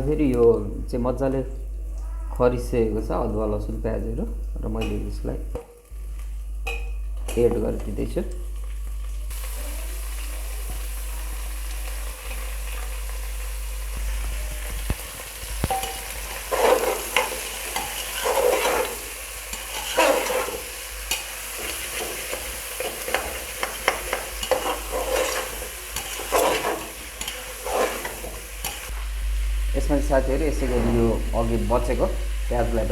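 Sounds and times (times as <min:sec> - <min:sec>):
meat sizzling in oil: 0:05.8 - 0:30.5, 0:31.2 - 0:32.9
spoon scraping and stirring: 0:15.6 - 0:28.9.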